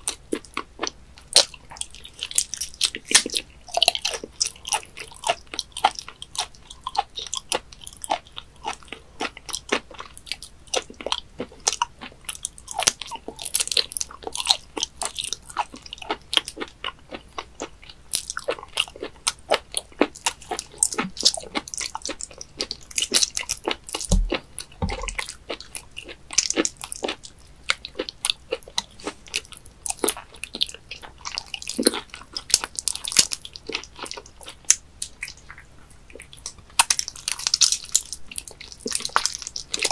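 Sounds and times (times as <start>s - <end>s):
wet chewing with sticky clicks: 0.0s - 39.9s
low knocks: 24.1s - 25.2s.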